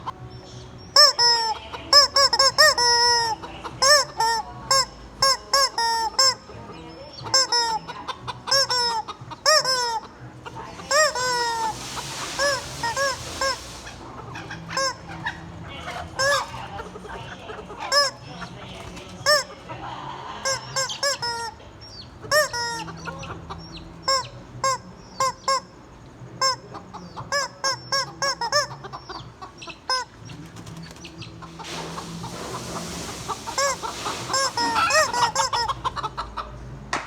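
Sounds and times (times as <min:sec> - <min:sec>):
rubber chicken squawking: 0:00.9 - 0:06.5, 0:07.2 - 0:18.5, 0:20.3 - 0:25.8, 0:26.4 - 0:30.3, 0:31.2 - 0:36.6
breathy hiss: 0:10.7 - 0:14.3, 0:31.5 - 0:35.7.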